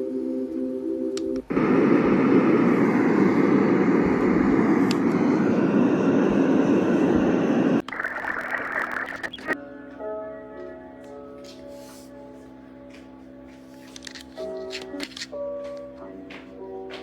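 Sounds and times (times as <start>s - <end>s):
white noise machine rushing: 1.5s - 9.6s.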